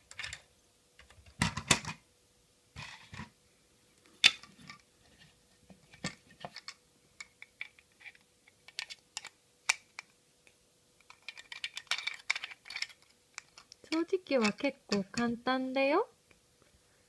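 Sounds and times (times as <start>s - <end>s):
plastic toy parts clicking: 6.0s - 10.1s, 11.0s - 15.4s.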